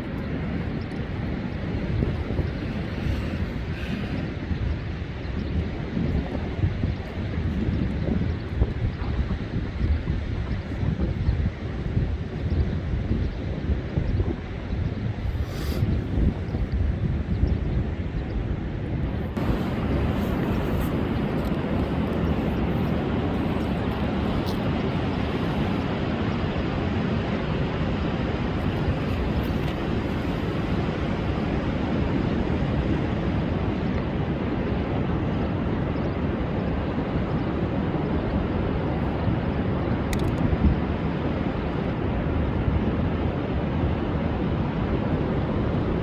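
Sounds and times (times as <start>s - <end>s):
surf breaking on a beach: 18.0s - 46.0s.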